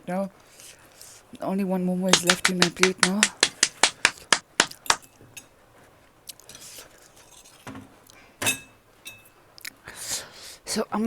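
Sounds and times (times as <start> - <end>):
cutlery clinking on plate: 4.8 - 5.5, 6.5 - 7.8, 8.4 - 9.4.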